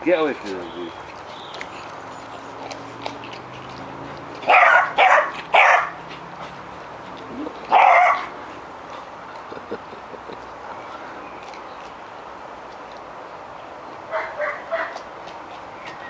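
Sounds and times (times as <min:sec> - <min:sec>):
dog barking: 0:04.5 - 0:06.0, 0:07.7 - 0:08.3, 0:14.1 - 0:15.0.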